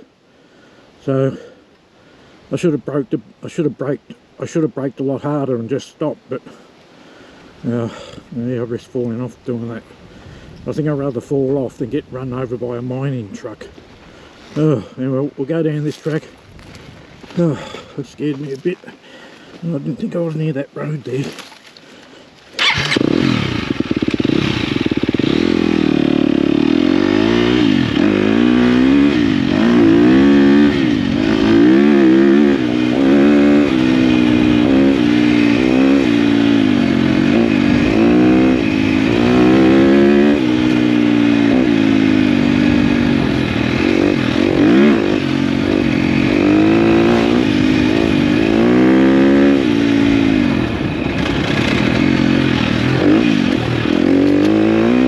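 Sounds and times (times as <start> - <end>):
dirt bike engine revving: 22.6 - 55.0.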